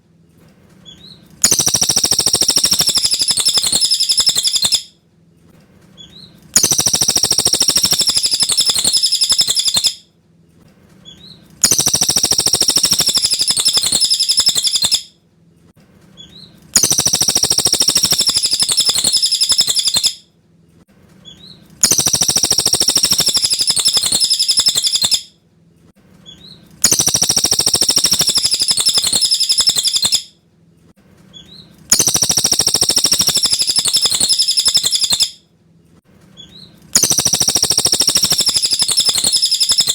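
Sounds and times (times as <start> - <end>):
bird singing high phrases: 0.8 - 4.9, 6.0 - 10.0, 11.0 - 15.1, 16.2 - 20.2, 21.2 - 25.3, 26.2 - 30.3, 31.3 - 35.4, 36.4 - 39.9
faint bird chirps: 0.8 - 4.9, 6.0 - 10.0, 11.0 - 15.1, 16.2 - 20.2, 21.2 - 25.3, 26.2 - 30.3, 31.3 - 35.4, 36.4 - 39.9.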